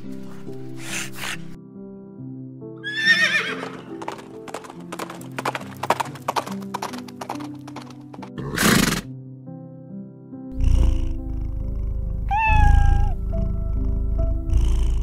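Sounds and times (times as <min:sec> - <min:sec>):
background music: 0:00.0 - 0:15.0
horse whinnying: 0:02.8 - 0:04.0, 0:08.4 - 0:09.1, 0:12.3 - 0:13.4
hoof clip-clops: 0:03.5 - 0:08.4.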